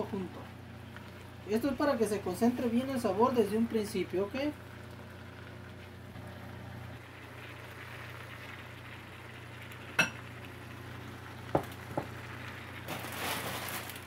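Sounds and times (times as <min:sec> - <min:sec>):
food sizzling in a wok: 0:07.0 - 0:14.0.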